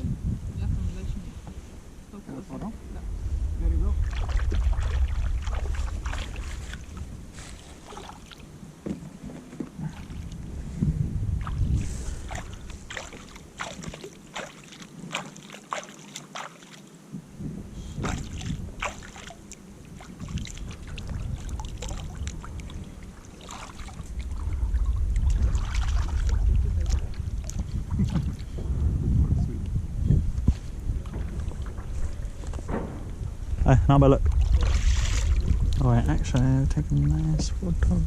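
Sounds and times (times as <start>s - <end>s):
wind rumbling on microphone: 0.0s - 15.3s, 17.0s - 38.0s
paddle splashing water: 4.0s - 10.4s, 11.4s - 17.0s, 17.9s - 28.7s, 30.4s - 33.3s, 34.2s - 37.1s.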